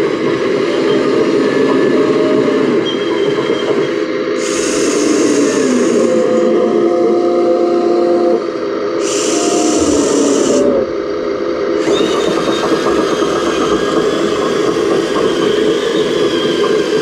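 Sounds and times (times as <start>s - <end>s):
model excavator motors whining: 0.0s - 17.0s.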